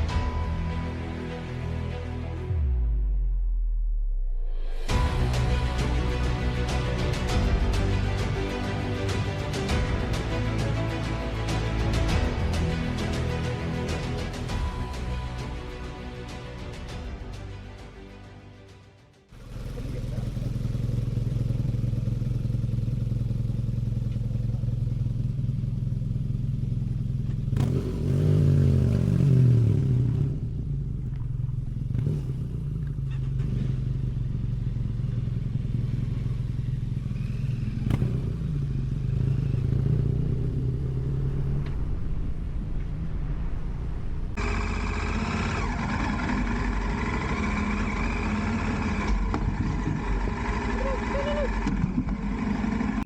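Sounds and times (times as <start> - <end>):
motorcycle engine running: 19.3 - 43.5, 44.3 - 53.0.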